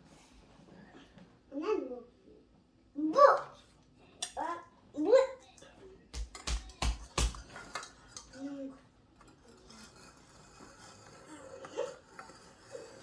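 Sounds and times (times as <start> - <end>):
kitchenware knocking and clattering: 6.2 - 8.3.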